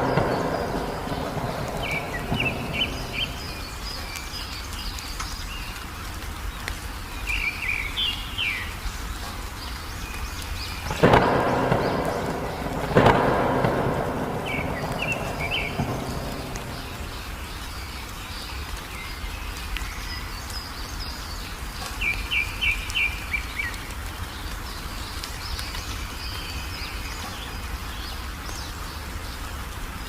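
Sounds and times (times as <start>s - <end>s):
thunderclaps: 0.0s - 4.7s, 10.1s - 18.2s
songbird chirping: 0.0s - 29.6s
rain and thunder rumble: 0.0s - 30.0s.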